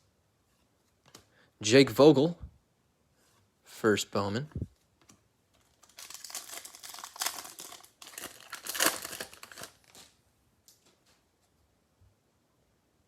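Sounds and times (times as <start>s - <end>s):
foil wrapper crinkling and tearing: 5.6s - 10.2s.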